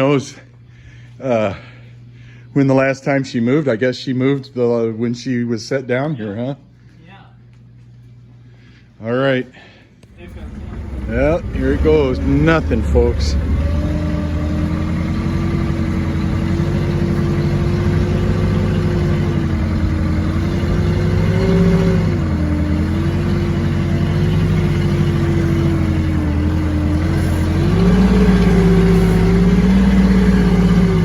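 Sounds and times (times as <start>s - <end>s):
forklift engine under load: 10.0s - 31.0s.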